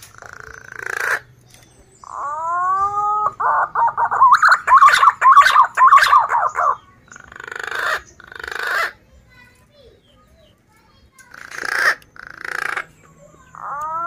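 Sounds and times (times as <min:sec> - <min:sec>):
harsh rasping bird notes: 0:00.0 - 0:09.4, 0:10.0 - 0:14.0
pigeon whistling song: 0:01.0 - 0:06.9.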